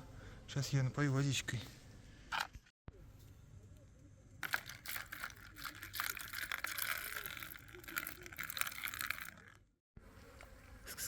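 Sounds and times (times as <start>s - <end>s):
plastic bottle crinkling: 4.4s - 9.6s
water pouring and splashing: 4.4s - 9.6s.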